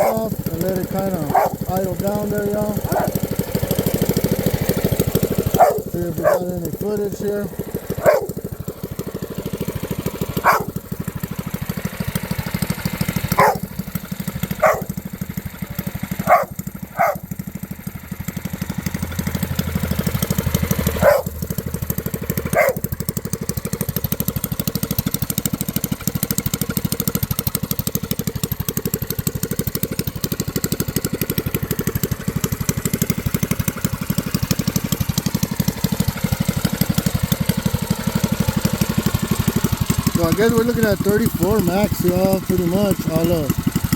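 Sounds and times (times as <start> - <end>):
dog barking: 0.0 - 1.8, 2.6 - 3.2, 5.5 - 6.8, 8.0 - 8.4, 10.4 - 10.8, 13.3 - 13.7, 14.6 - 15.0, 15.8 - 17.3, 21.0 - 21.4, 22.4 - 22.9
small engine idling: 0.0 - 43.9.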